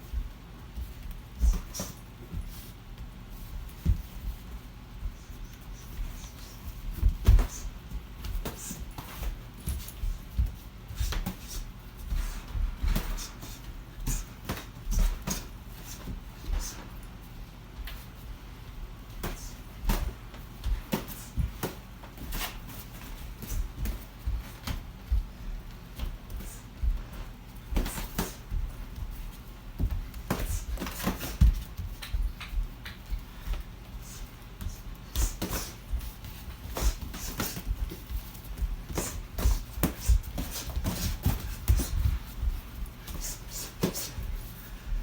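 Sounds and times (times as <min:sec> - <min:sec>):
boxing gloves smacking: 0:34.6 - 0:42.5.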